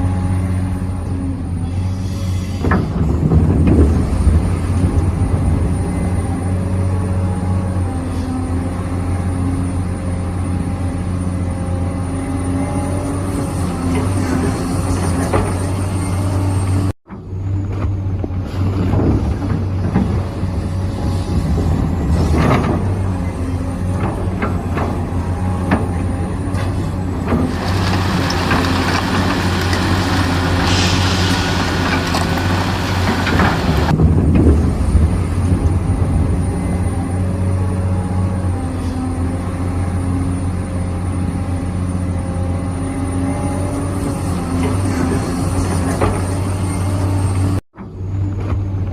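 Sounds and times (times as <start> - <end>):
knocks of excavator working: 2.4 - 10.7, 11.6 - 48.9
loud hiss: 29.8 - 33.9.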